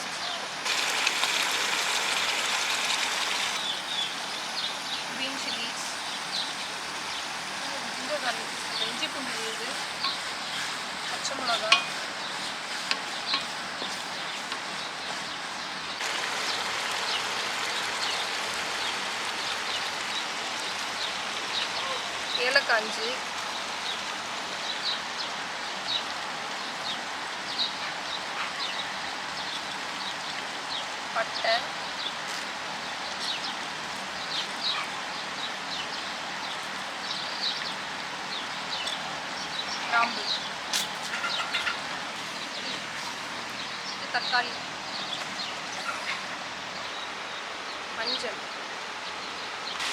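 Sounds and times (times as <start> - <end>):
small birds chirping: 0.0 - 49.9
food sizzling in hot oil: 0.5 - 30.5.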